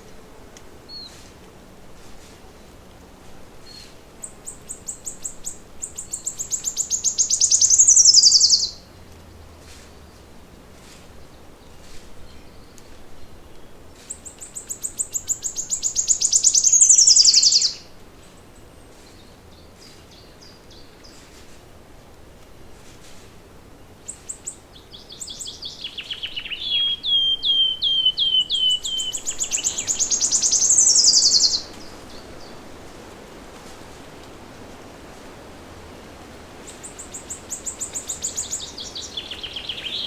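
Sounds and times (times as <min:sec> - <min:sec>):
faint bird chirps: 0:03.6 - 0:08.8, 0:12.3 - 0:17.8, 0:24.1 - 0:32.6
songbird trilling: 0:03.7 - 0:08.8, 0:14.1 - 0:17.9, 0:24.1 - 0:32.6, 0:36.7 - 0:40.0.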